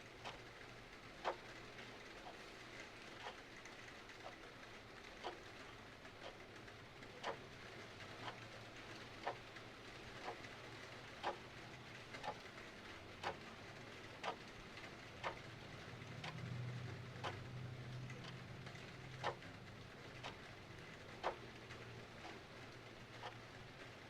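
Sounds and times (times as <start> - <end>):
clock ticking: 0.1 - 0.4, 1.2 - 1.6, 5.2 - 5.5, 7.1 - 7.4, 8.0 - 12.6, 13.2 - 15.6, 16.2 - 24.0.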